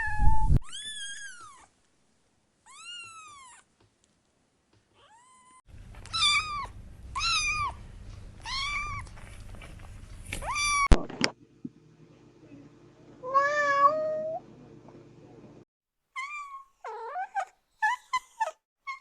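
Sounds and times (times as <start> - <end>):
kitten meowing: 2.7 - 3.6, 5.0 - 7.8, 8.4 - 9.1, 10.4 - 10.9.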